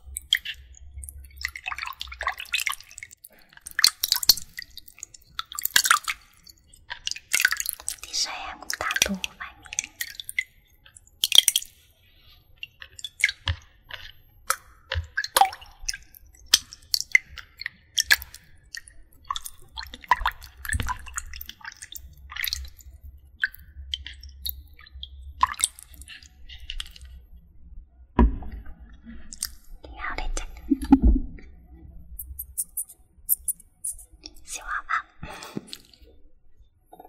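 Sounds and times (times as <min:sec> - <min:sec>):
wet squishing and dripping: 0:00.0 - 0:27.4, 0:28.2 - 0:36.2.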